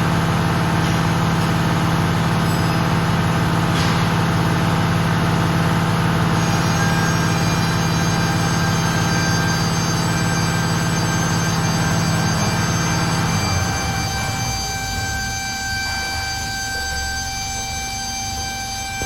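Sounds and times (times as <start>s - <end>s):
engine running: 0.0s - 19.0s
air brake droning hum: 13.0s - 19.0s.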